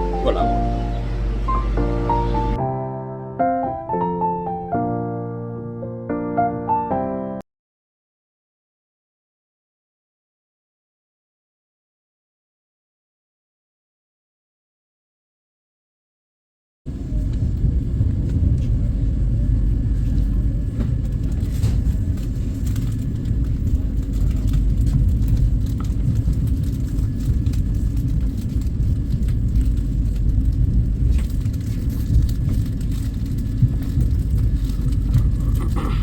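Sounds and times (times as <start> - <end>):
train running low rumble: 0.0 - 2.6, 16.9 - 36.0.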